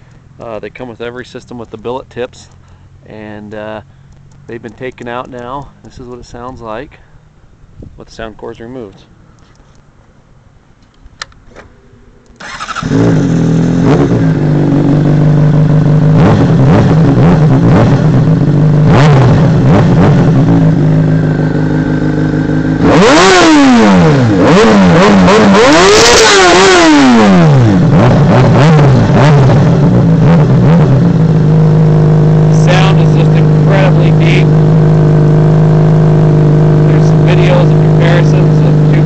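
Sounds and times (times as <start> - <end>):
motorcycle engine idling and revving: 11.7 - 39.0.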